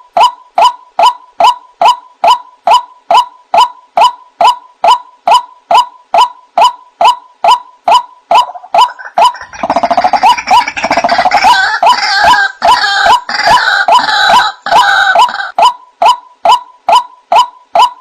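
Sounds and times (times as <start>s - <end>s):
waterhen repeated notes: 0.0s - 18.0s
harsh chattering bird chorus: 8.8s - 11.6s.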